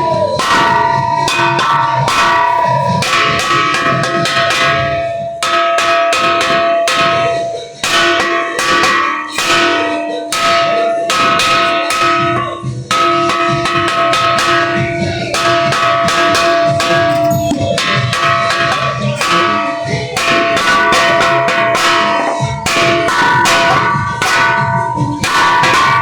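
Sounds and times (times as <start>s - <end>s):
bells ringing: 16.9s - 18.5s.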